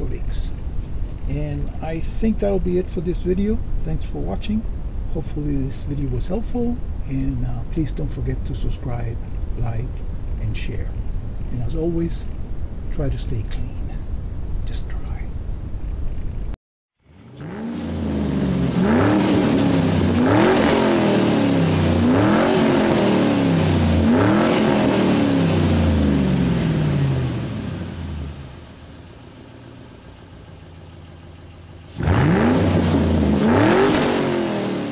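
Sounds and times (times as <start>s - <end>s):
car engine revving: 17.0s - 34.9s.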